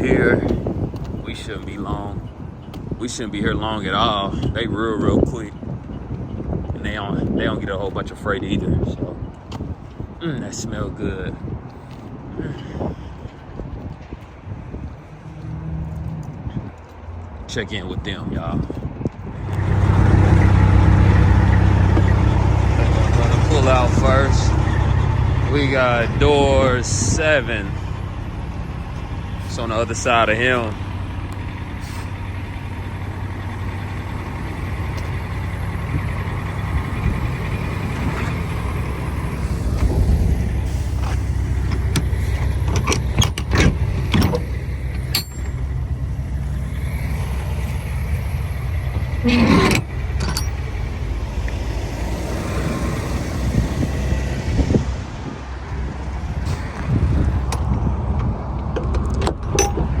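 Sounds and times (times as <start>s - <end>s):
truck diesel engine running: 0.0s - 60.0s.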